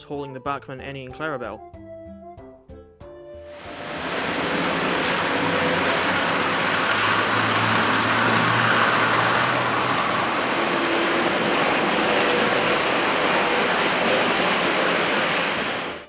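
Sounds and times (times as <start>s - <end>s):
model train motors whirring: 4.0s - 16.0s.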